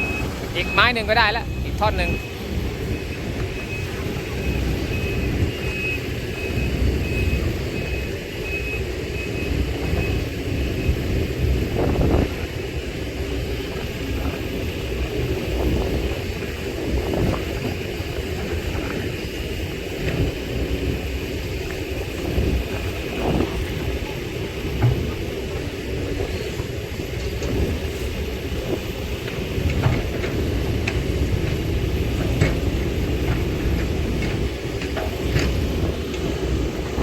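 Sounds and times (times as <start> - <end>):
warning alarm beeping: 0.0 - 12.9
heavy diesel machinery running: 0.0 - 37.0.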